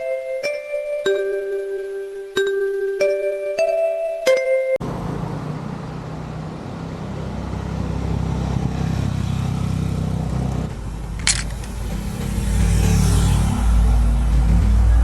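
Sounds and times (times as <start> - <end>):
road and wind noise: 4.8 - 15.0
motorcycle engine running: 9.4 - 15.0.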